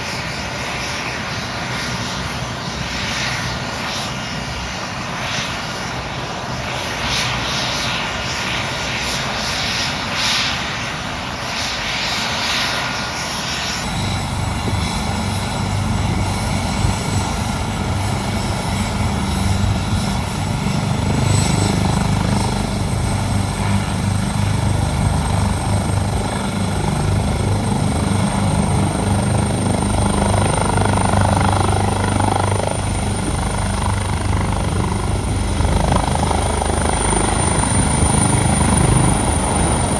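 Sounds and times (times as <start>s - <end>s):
helicopter rotor beat: 0.0s - 39.9s
helicopter turbine whine: 0.0s - 39.9s.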